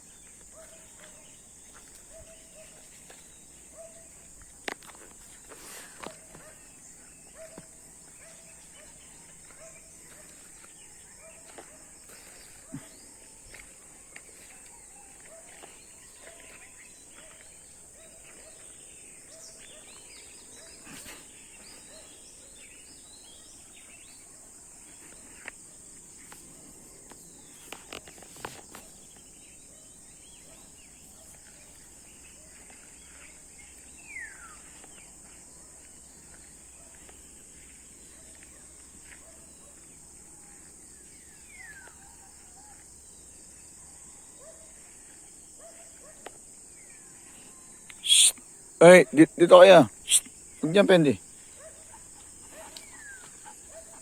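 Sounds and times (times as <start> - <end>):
insects chirring: 0.0 - 54.0
small clicks and rustles: 26.2 - 29.2
short low call: 47.9 - 48.4.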